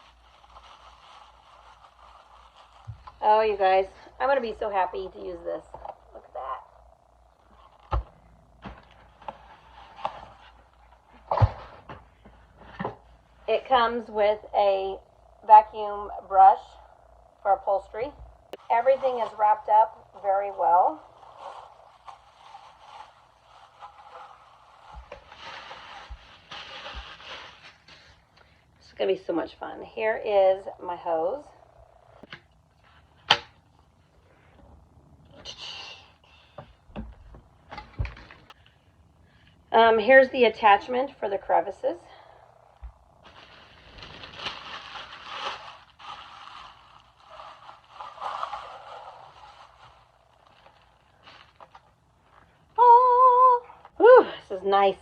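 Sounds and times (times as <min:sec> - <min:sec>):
packaging rustling and crinkling: 0:00.0 - 0:03.4, 0:21.0 - 0:28.4, 0:43.2 - 0:52.5.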